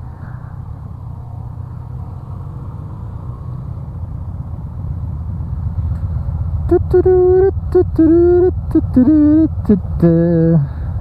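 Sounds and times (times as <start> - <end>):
motorcycle engine running: 3.7 - 11.0.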